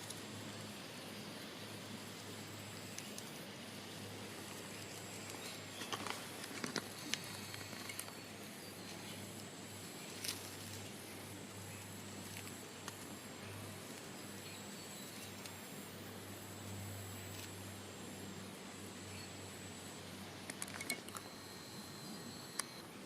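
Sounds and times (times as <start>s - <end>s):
steady hiss: 0.0s - 23.0s
small sharp clicks and rustles: 4.4s - 8.2s, 20.4s - 21.4s.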